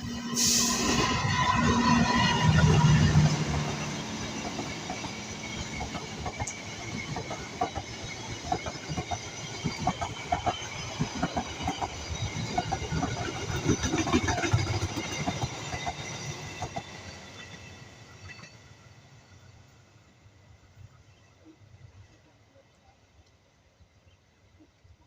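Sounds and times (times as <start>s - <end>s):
train wheels clattering on rails: 0.8s - 18.6s.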